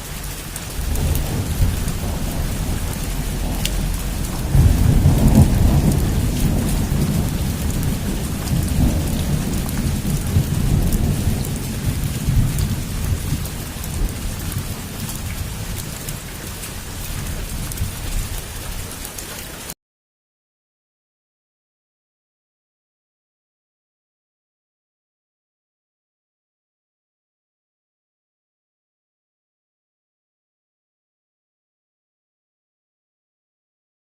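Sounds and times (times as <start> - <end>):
heavy rain on a roof: 0.0 - 19.8
rolling thunder: 0.2 - 18.4.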